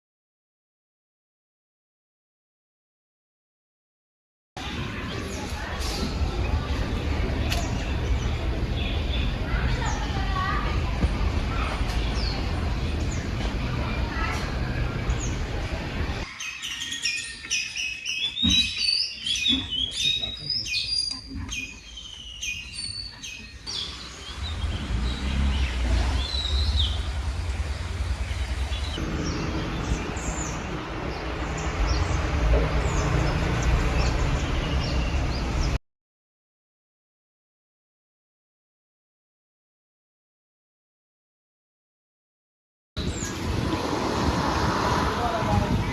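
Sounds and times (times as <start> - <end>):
steady low rumble: 4.6 - 16.3
songbirds chirping: 4.6 - 35.8.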